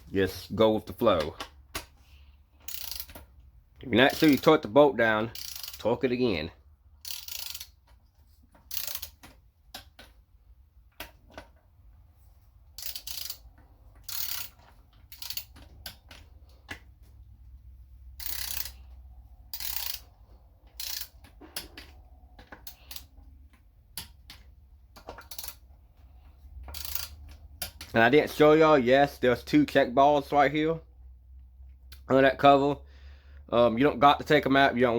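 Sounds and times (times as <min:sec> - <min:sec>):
ratchet wrench clicking: 0:02.6 - 0:03.4, 0:04.1 - 0:04.6, 0:05.3 - 0:05.9, 0:07.0 - 0:07.9, 0:08.6 - 0:10.0, 0:12.7 - 0:16.0, 0:18.2 - 0:21.7, 0:22.6 - 0:23.1, 0:25.2 - 0:25.6, 0:26.7 - 0:27.8.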